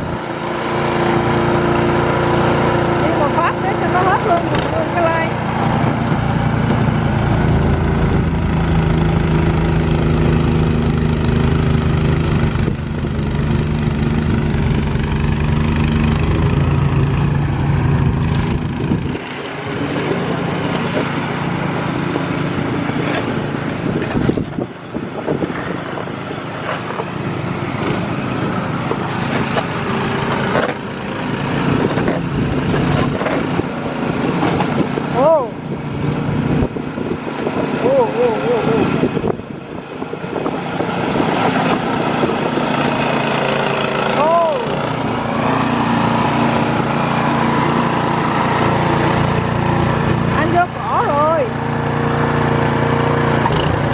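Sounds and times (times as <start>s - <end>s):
engine running steadily: 0.0s - 53.9s.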